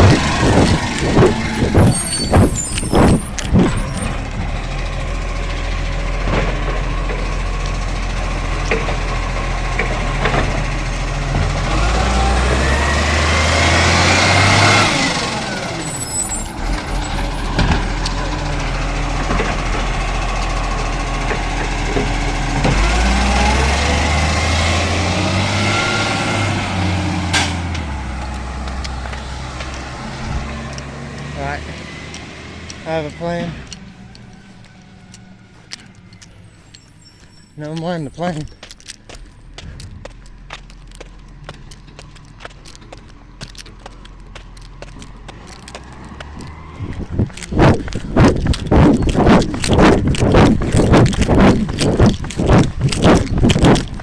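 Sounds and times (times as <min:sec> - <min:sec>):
sharp knocks: 0:00.0 - 0:04.2
diesel engine revving: 0:00.0 - 0:54.0.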